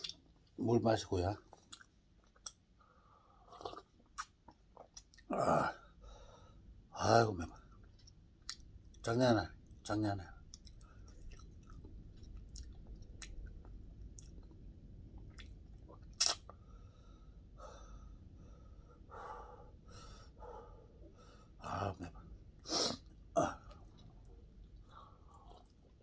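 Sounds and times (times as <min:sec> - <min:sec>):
man chewing food: 0:01.4 - 0:02.7, 0:03.4 - 0:05.3, 0:07.6 - 0:09.8, 0:10.4 - 0:18.4, 0:22.2 - 0:26.0.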